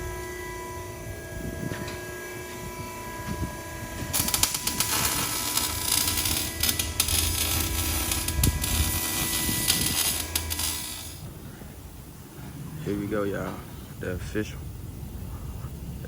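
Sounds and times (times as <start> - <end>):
shop tool on exhaust pipe: 1.7 - 11.6.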